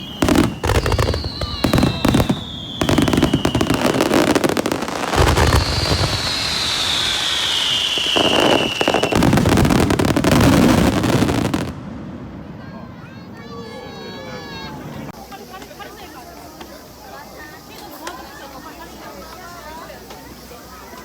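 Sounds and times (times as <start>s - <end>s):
high falling whistle: 0.0s - 10.3s
low firework booms: 0.0s - 13.3s
firework bangs and crackling: 0.0s - 13.8s.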